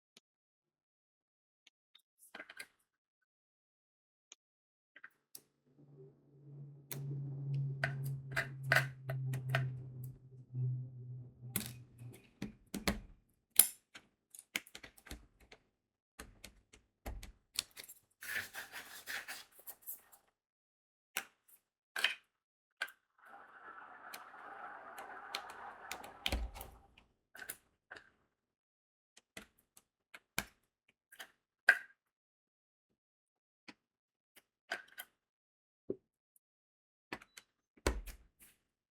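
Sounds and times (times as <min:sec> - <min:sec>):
low steady hum: 0:05.7 - 0:13.0, 0:23.2 - 0:27.0.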